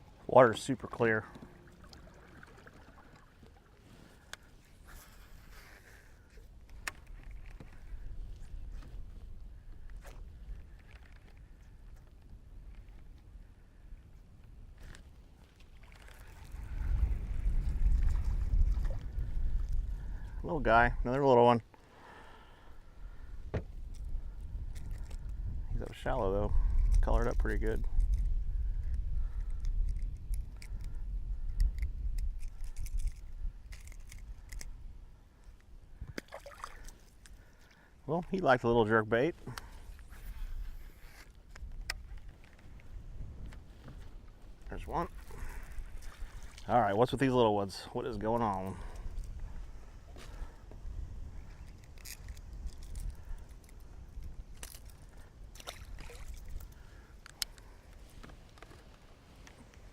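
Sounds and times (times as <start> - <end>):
water sloshing against hull: 0.0 - 13.2, 14.8 - 20.4, 35.4 - 38.4, 39.4 - 46.8, 54.6 - 59.9
wind rumbling on microphone: 0.0 - 21.3, 22.4 - 37.5, 38.1 - 59.9
splashes: 1.6 - 3.8, 36.2 - 37.0, 55.5 - 56.6.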